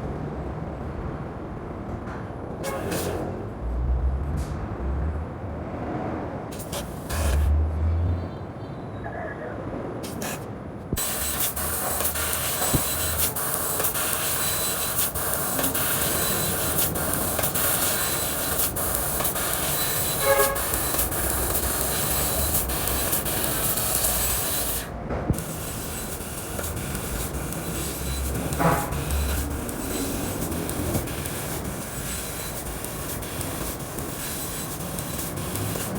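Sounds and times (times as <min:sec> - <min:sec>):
laser cutter hissing: 0:06.5 - 0:07.6, 0:10.0 - 0:35.9.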